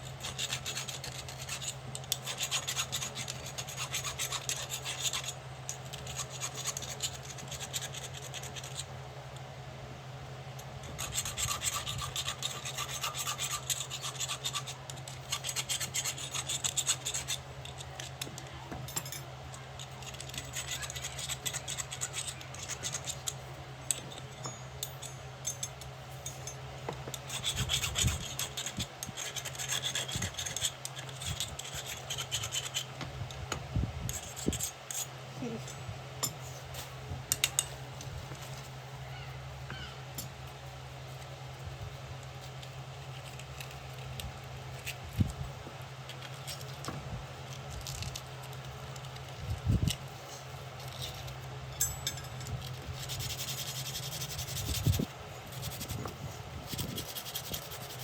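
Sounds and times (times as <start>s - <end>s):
file rasping on iron: 0.0s - 8.8s, 10.8s - 18.3s, 27.1s - 32.9s, 52.7s - 58.0s.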